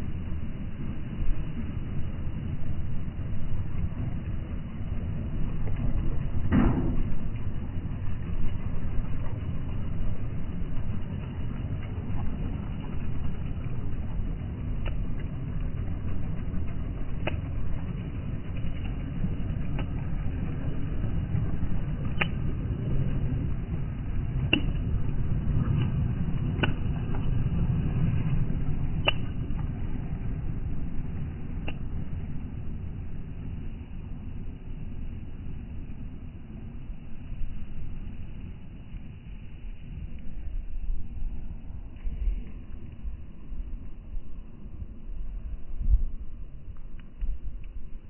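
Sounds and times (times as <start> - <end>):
heavy truck engine rumbling: 0.0 - 44.1
sharp clicks: 29.0 - 29.8.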